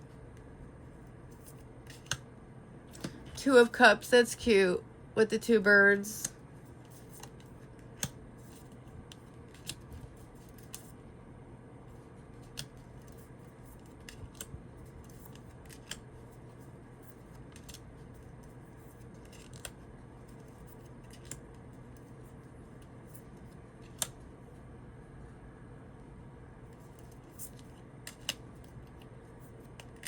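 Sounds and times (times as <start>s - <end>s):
cards clicking and snapping: 1.3s - 2.2s, 6.9s - 10.9s, 12.4s - 16.1s, 17.1s - 22.1s, 23.8s - 24.2s, 26.8s - 30.0s.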